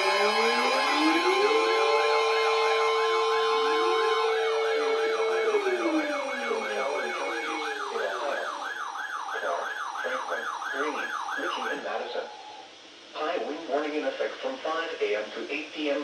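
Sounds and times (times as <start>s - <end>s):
steady siren tone: 0.0s - 12.7s
warbling siren: 0.0s - 12.7s.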